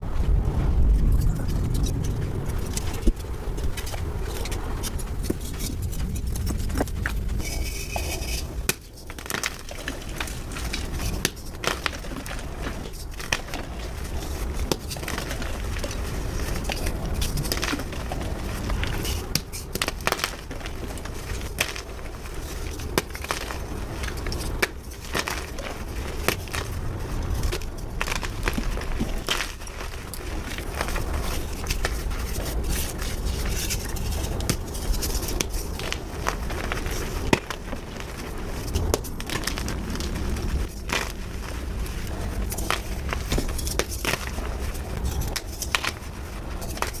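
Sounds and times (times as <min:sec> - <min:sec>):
chalk crunching and crumbling: 0:00.8 - 0:47.0.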